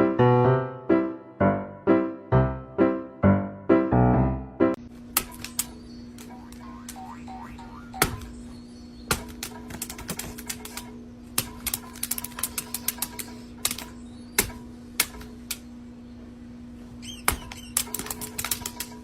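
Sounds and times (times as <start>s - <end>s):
steady low hum: 4.4s - 19.0s.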